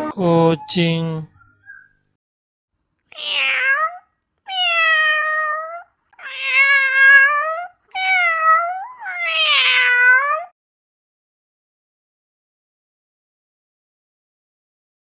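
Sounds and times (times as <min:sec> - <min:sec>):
cat meowing: 0:03.1 - 0:10.5.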